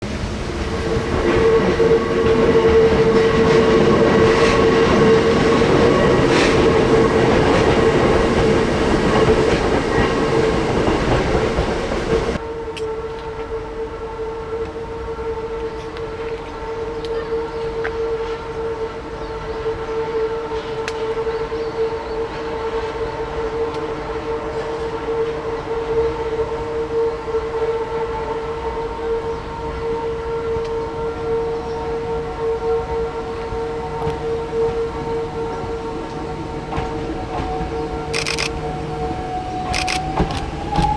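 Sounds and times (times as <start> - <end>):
train wheels clattering on rails: 0.0 - 12.4, 34.0 - 40.9
electric train whine: 0.0 - 40.9.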